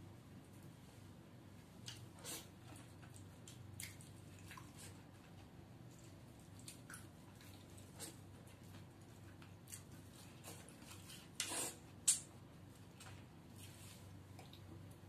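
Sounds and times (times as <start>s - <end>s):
low steady hum: 0.0s - 15.0s
wet mouth clicks and squishes: 3.1s - 4.8s, 11.4s - 12.3s.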